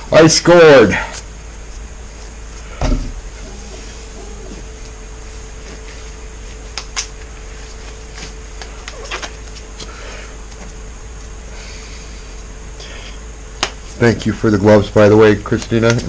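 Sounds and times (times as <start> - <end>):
steady hum: 0.0 - 16.0
disposable gloves snapping and rustling: 6.5 - 10.8, 13.6 - 13.9, 15.4 - 16.0.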